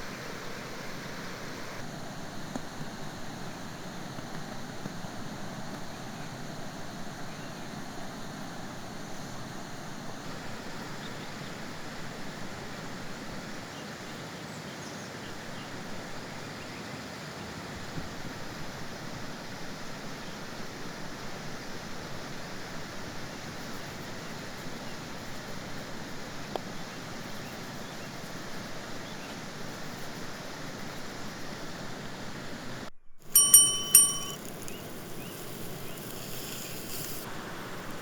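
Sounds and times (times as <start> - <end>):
metallic clinks: 33.3 - 34.8.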